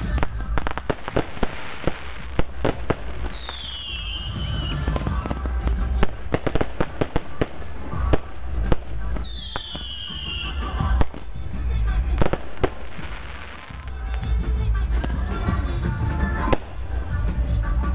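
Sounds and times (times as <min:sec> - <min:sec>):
fireworks reports and pops: 0:00.0 - 0:17.9
descending firework whistle: 0:00.2 - 0:11.1.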